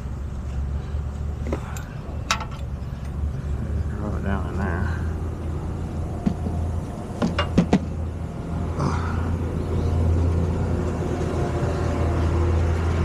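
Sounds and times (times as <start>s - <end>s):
sharp knocks: 7.2s - 7.9s.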